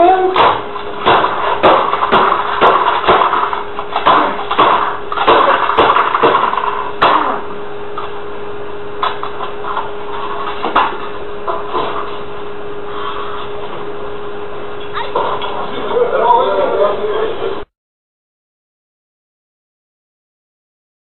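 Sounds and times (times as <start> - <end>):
steady hum: 0.0 - 17.7
computer being smashed: 0.4 - 7.4.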